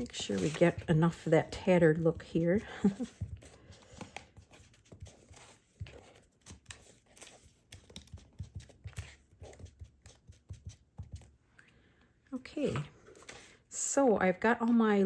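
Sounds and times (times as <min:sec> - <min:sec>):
paper rustling and tearing: 0:00.0 - 0:00.9.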